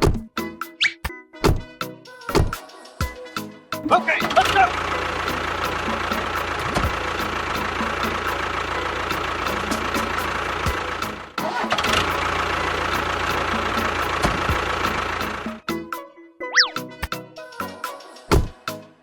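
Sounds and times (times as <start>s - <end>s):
engine running with ticking rattle: 4.3s - 15.7s.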